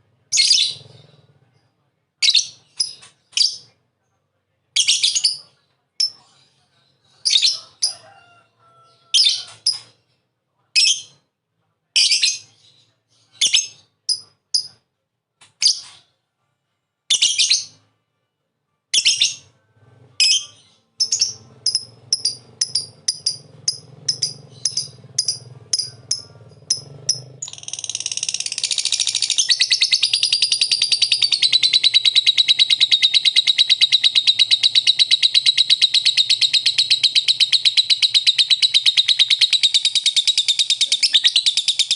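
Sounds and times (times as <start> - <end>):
lovebird chirping and trilling: 0.3 - 1.3, 2.2 - 3.7, 4.8 - 5.4, 12.0 - 14.8, 17.1 - 17.8, 18.9 - 19.5, 20.2 - 41.9.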